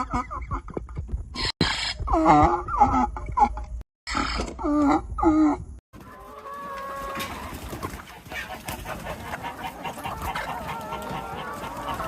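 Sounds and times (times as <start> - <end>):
bird clucking notes: 7.9 - 12.0.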